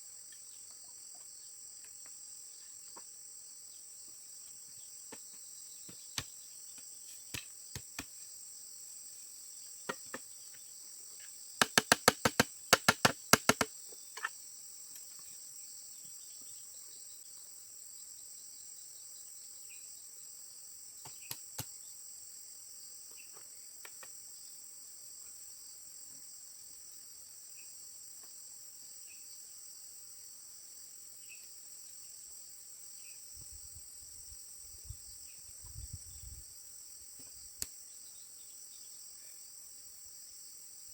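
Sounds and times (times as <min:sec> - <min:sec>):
high-pitched insect chorus: 0:00.0 - 0:40.9
sharp knocks: 0:11.6 - 0:13.7.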